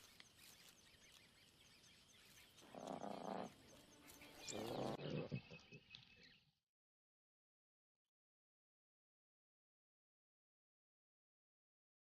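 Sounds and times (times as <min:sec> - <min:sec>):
faint high chirping: 0:00.0 - 0:06.5
lions growling: 0:02.6 - 0:05.8.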